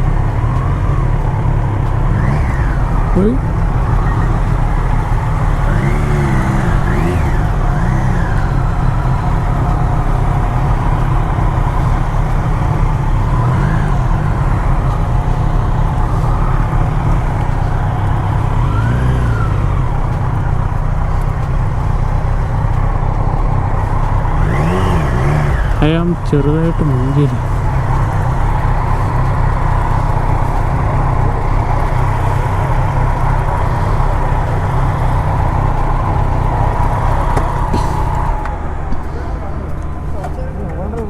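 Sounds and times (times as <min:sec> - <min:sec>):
car engine and road noise: 0:00.0 - 0:41.0.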